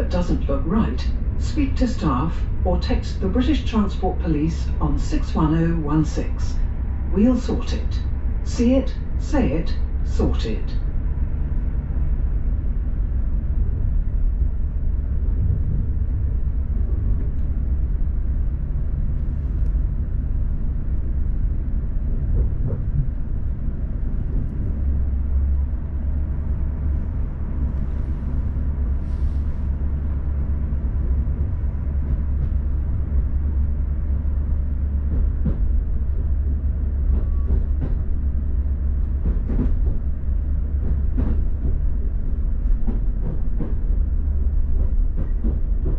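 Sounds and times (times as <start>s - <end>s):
train wheels rumbling on rails: 0.0s - 45.9s.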